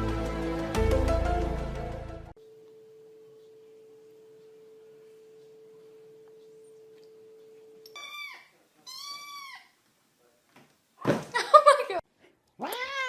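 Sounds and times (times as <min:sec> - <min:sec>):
cat meowing: 0:07.9 - 0:09.8, 0:12.6 - 0:13.0.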